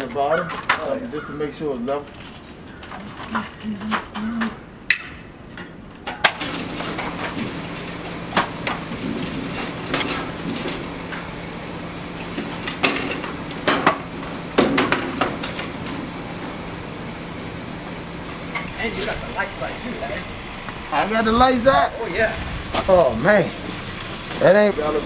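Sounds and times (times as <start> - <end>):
tools knocking and clanking on shutter: 0.0 - 1.0, 1.8 - 11.3, 12.2 - 16.1
steady low hum: 0.0 - 25.0.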